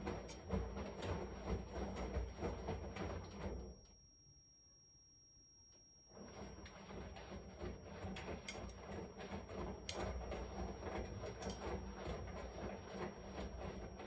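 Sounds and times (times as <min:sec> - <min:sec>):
washing machine rumbling: 0:06.2 - 0:14.0.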